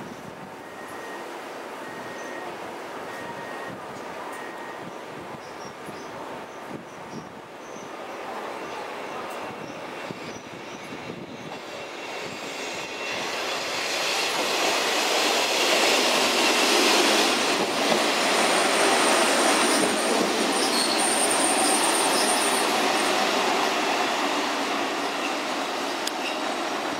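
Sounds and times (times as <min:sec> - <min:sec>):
railcar wheels rolling on rails: 0:00.0 - 0:26.9
high brake squeal: 0:00.6 - 0:02.5, 0:03.1 - 0:04.9, 0:09.4 - 0:14.3, 0:19.6 - 0:22.8, 0:26.2 - 0:26.5.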